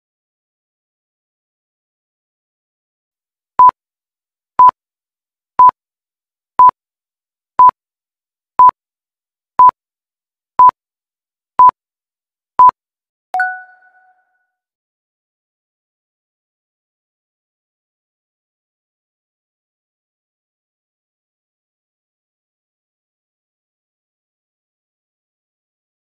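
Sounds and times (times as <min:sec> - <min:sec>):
ringing two-tone chime: 0:13.4 - 0:14.1
short electronic beeps: 0:13.4 - 0:14.2.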